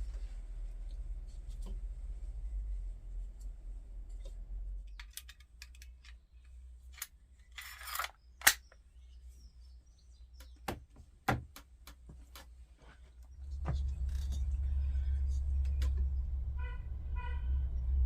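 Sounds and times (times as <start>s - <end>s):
wooden boards clicking and knocking: 10.4s - 12.5s.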